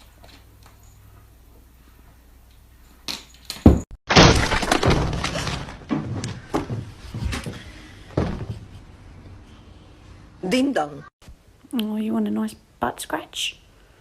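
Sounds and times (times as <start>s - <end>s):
crash of something breaking: 4.1s - 6.0s.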